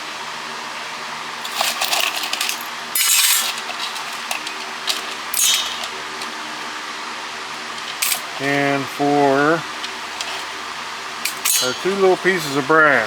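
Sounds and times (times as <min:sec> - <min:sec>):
scrap metal pieces clinking: 0:01.4 - 0:06.3, 0:07.8 - 0:08.6, 0:09.7 - 0:10.6, 0:11.2 - 0:12.2.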